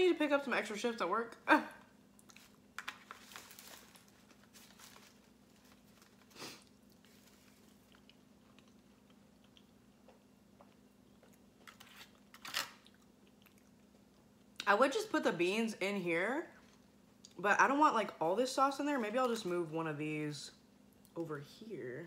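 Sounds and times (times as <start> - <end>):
low steady hum: 0.0 - 22.0
chewing soft food: 2.1 - 2.8, 5.5 - 14.6.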